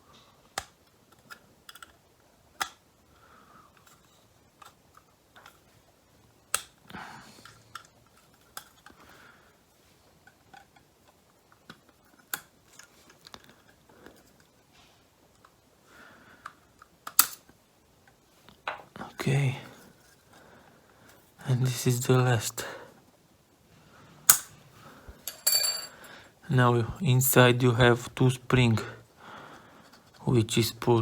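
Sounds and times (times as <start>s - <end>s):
plastic clips snapping: 6.5s - 6.8s, 17.0s - 17.5s, 24.3s - 24.5s.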